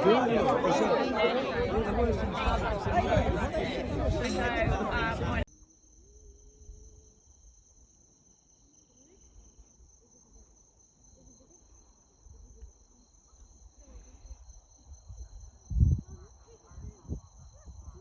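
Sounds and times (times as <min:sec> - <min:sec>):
faint voices murmuring: 0:00.0 - 0:05.5
crickets chirring: 0:00.0 - 0:18.0.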